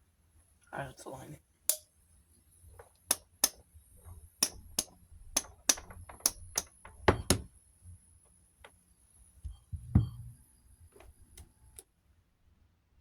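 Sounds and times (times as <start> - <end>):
taps on fan motor: 2.8 - 7.5.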